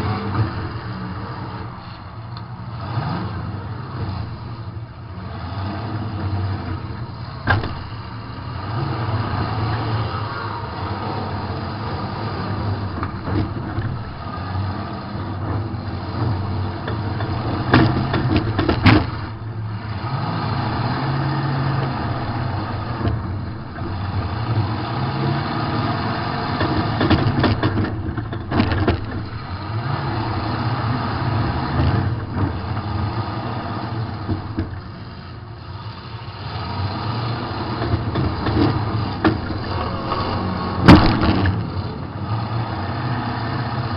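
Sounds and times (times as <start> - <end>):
car engine revving: 0.0 - 43.9
car crash impacts: 40.7 - 41.8.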